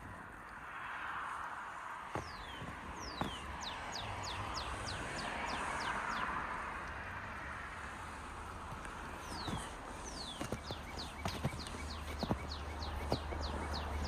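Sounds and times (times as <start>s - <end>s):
steady rushing background noise: 6.6s - 14.0s.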